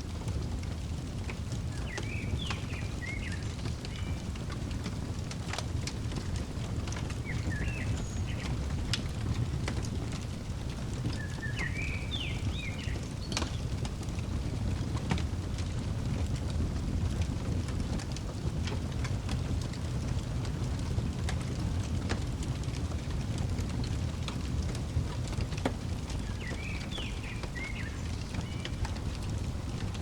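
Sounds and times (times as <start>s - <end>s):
fireplace crackling and popping: 0.0s - 30.0s
small bird chirping: 7.1s - 8.8s, 11.0s - 13.7s, 26.2s - 29.9s.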